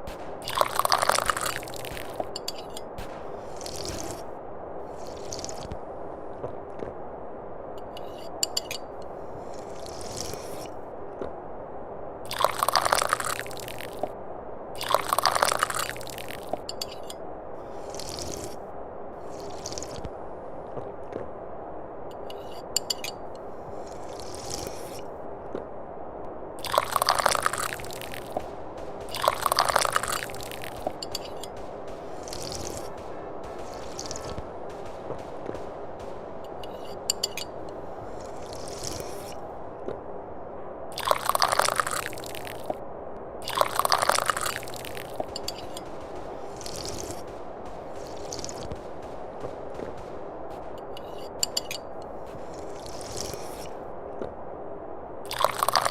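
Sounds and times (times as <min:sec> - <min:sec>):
background hiss: 0:00.0 - 0:55.9
tea slurped from cup: 0:00.4 - 0:02.2, 0:05.0 - 0:05.7, 0:12.3 - 0:14.1, 0:14.8 - 0:16.6, 0:17.7 - 0:18.6, 0:19.2 - 0:20.0, 0:26.6 - 0:28.3, 0:29.1 - 0:31.3, 0:41.0 - 0:42.7, 0:43.4 - 0:45.1, 0:55.3 - 0:55.9.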